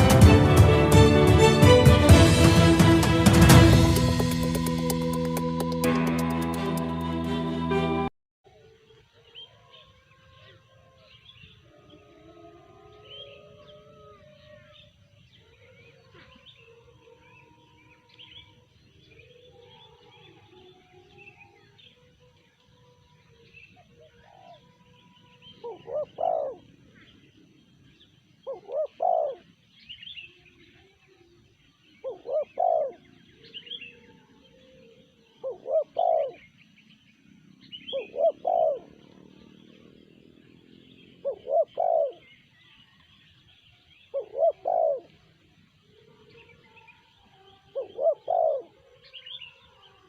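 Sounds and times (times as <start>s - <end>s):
small birds chirping: 12.8s - 50.0s
dove cooing: 23.8s - 24.7s, 25.4s - 27.2s, 28.4s - 29.6s, 32.0s - 36.6s, 37.6s - 39.9s, 40.9s - 42.4s, 44.0s - 45.4s, 47.6s - 49.5s.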